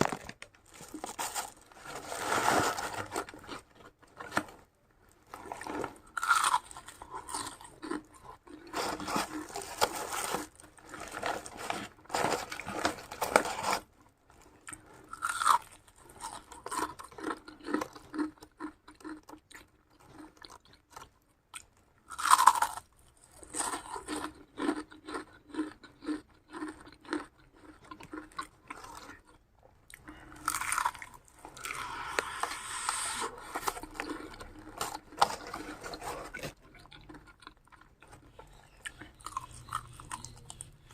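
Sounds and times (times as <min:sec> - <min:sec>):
rhythmic chewing: 0:05.2 - 0:40.9
crunching bites: 0:05.4 - 0:13.6, 0:14.7 - 0:19.6, 0:22.1 - 0:40.9.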